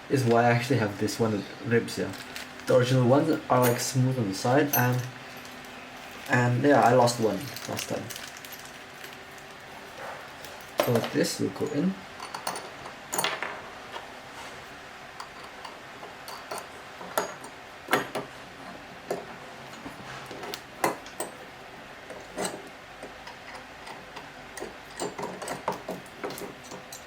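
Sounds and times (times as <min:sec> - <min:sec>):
small metal parts clicking: 0:04.7 - 0:09.6, 0:23.2 - 0:27.0.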